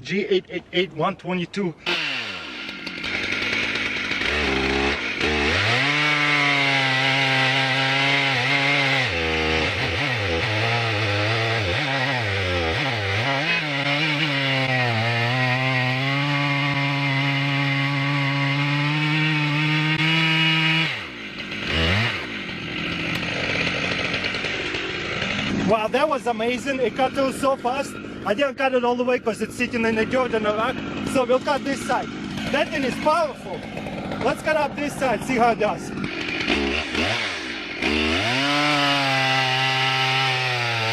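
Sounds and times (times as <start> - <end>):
chainsaw cutting log: 1.0 - 40.9.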